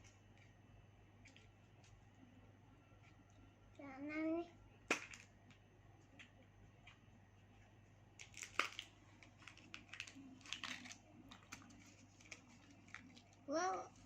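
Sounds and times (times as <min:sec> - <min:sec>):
plastic wrapper crinkling: 0:08.2 - 0:13.4.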